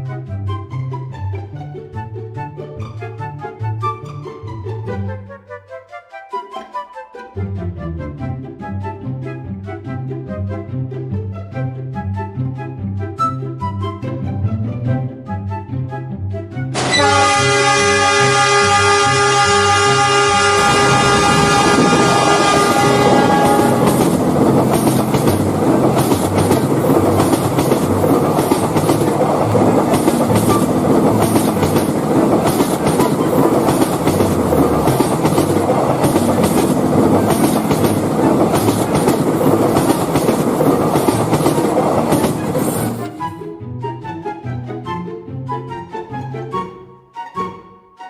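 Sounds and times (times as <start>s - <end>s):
train horn chord: 16.8s - 24.9s
train wheels clickety-clack: 20.6s - 43.2s.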